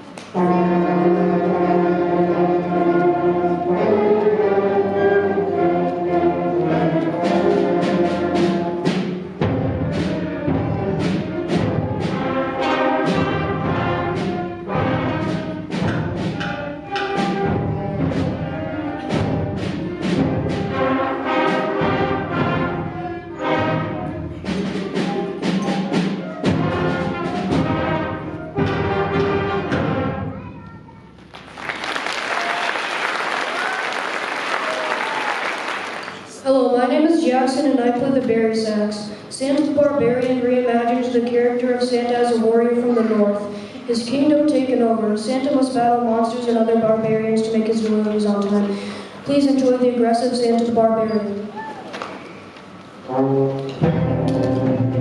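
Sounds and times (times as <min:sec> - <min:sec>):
concert band brass chords: 0:00.0 - 0:30.4, 0:52.6 - 0:55.0
percussion hits: 0:06.1 - 0:30.6, 0:52.1 - 0:55.0.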